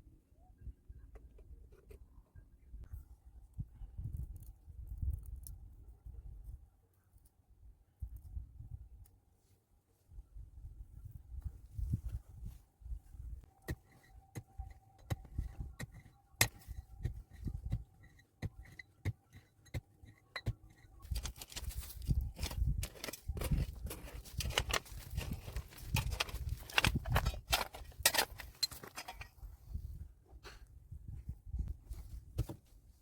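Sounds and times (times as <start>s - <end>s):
knocks and scraping clatter: 13.6s - 29.5s.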